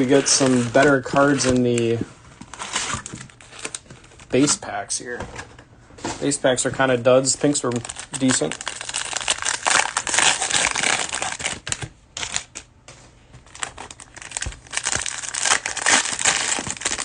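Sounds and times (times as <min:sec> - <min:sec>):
cellophane wrapper crinkling: 0:00.0 - 0:04.6, 0:07.4 - 0:12.7, 0:13.4 - 0:17.0.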